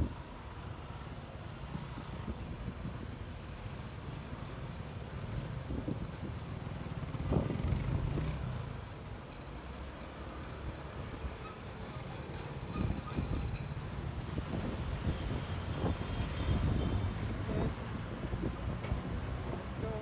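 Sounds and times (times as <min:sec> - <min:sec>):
wind rumbling on microphone: 0:04.8 - 0:08.5, 0:12.5 - 0:19.2.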